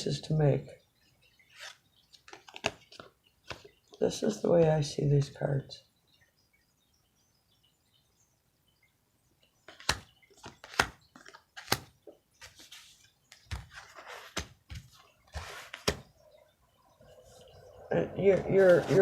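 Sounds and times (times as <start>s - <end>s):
papery rustles of cards: 1.5s - 3.7s, 9.7s - 16.1s.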